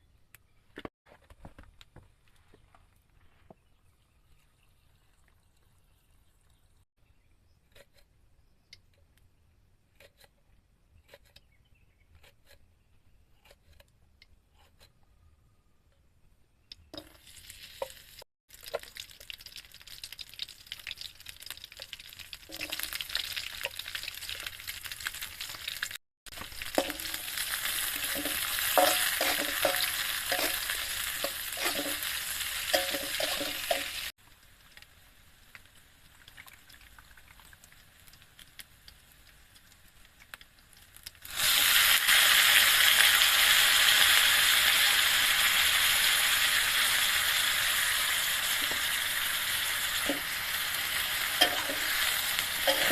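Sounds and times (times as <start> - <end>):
food sizzling in a pan: 17.2 - 40.1, 41.0 - 52.9.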